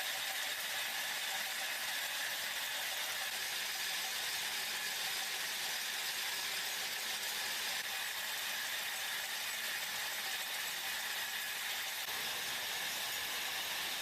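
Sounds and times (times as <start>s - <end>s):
factory machinery hissing: 12.0s - 14.0s.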